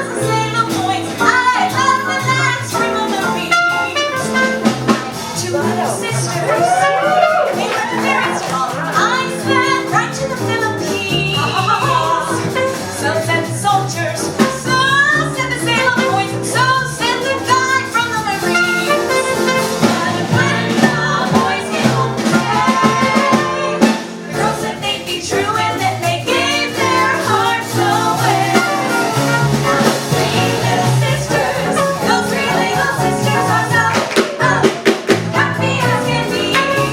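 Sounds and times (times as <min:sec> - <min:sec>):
swing jazz band with brass: 0:00.0 - 0:36.9
vocal trio singing: 0:19.3 - 0:36.9.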